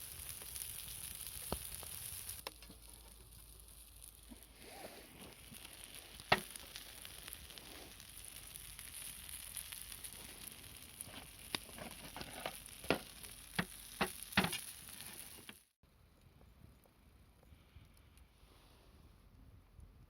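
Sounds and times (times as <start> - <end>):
food sizzling in a frying pan: 0.0 - 15.7.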